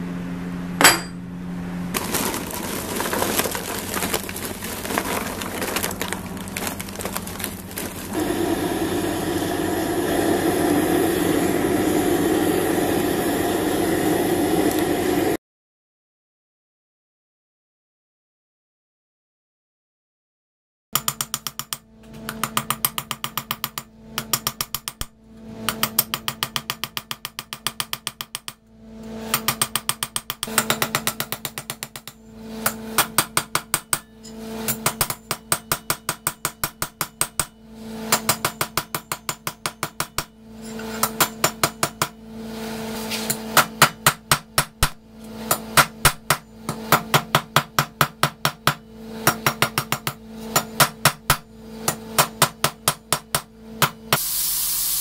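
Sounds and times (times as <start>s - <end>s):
steady hum: 0.0s - 15.4s
hammer striking steel on anvil: 0.8s - 1.3s, 21.0s - 25.1s, 25.7s - 28.6s, 29.3s - 37.5s, 38.1s - 42.2s, 43.6s - 54.2s.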